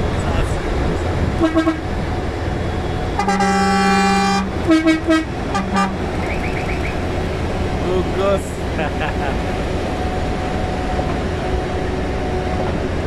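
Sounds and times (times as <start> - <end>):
low engine rumble: 0.0 - 13.0
truck horn blasts: 1.4 - 2.0, 3.2 - 7.1.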